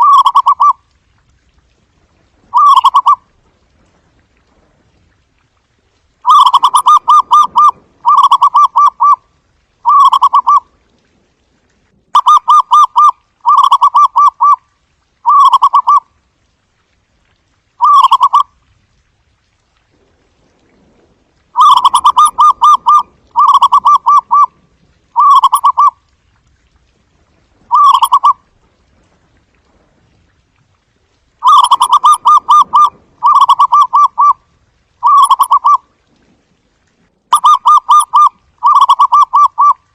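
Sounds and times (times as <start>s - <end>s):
dove cooing: 0.0s - 0.7s, 2.5s - 3.2s, 6.3s - 9.2s, 9.8s - 10.6s, 12.2s - 14.6s, 21.6s - 24.6s, 25.2s - 26.0s, 27.7s - 28.4s, 31.4s - 34.4s, 35.0s - 35.8s, 37.3s - 39.8s.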